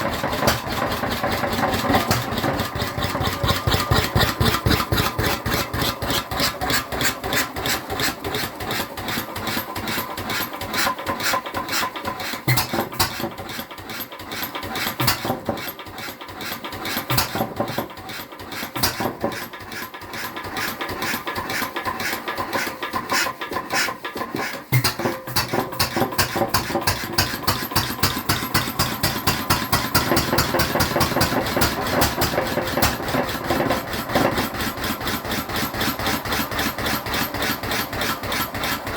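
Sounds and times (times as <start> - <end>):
stationary engine running: 0.0 - 11.0.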